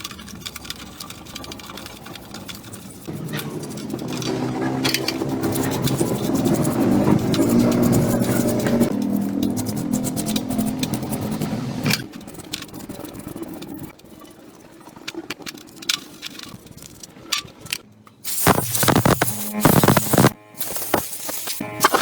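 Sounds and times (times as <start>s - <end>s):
small motor running: 2.4s - 12.1s.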